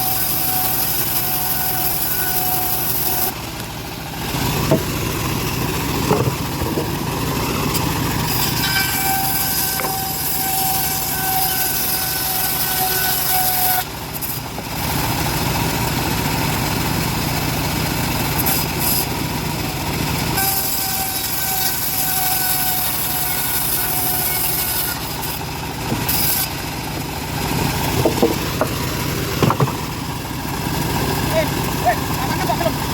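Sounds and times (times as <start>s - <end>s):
bandsaw mill sawing wood: 0.0s - 32.9s
high whining tone: 4.2s - 11.6s.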